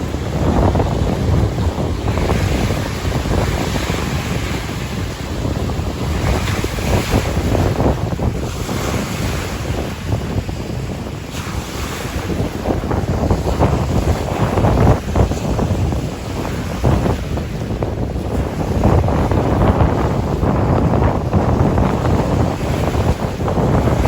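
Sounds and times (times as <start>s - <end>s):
waves washing against shore: 0.0s - 24.0s
wind buffeting microphone: 0.0s - 24.0s.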